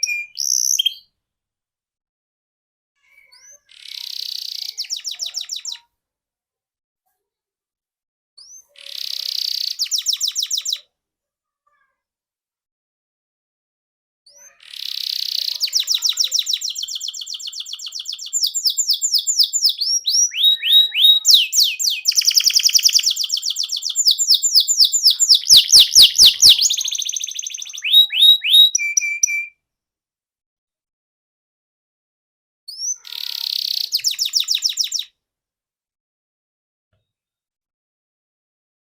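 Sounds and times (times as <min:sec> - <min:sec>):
canary singing trills: 0:00.0 - 0:01.0, 0:03.1 - 0:05.9, 0:08.4 - 0:10.9, 0:14.3 - 0:29.5, 0:32.7 - 0:35.1.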